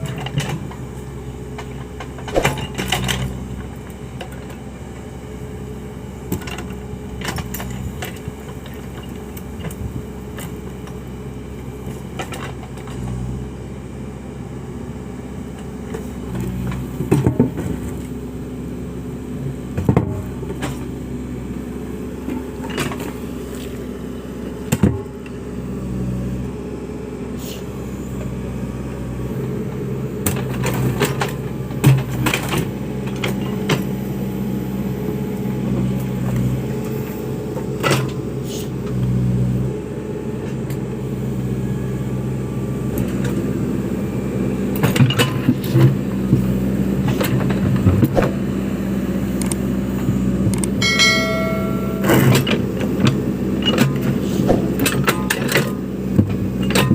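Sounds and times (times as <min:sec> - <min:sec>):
sharp knocks and clanks: 0:50.8 - 0:52.7.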